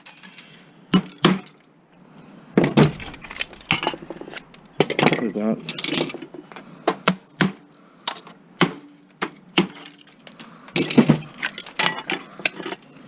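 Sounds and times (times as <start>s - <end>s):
metal parts clacking: 0.0s - 1.7s, 2.8s - 6.5s, 9.0s - 13.0s.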